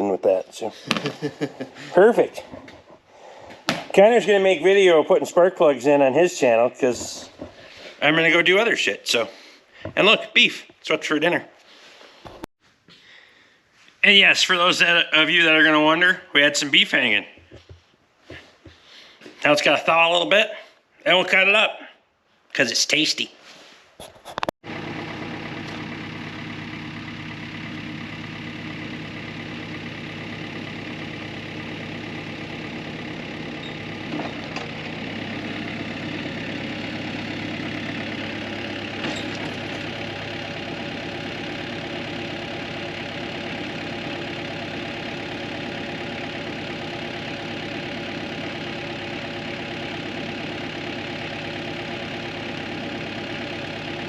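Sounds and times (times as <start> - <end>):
engine idling: 0.0 - 10.2, 24.6 - 54.0.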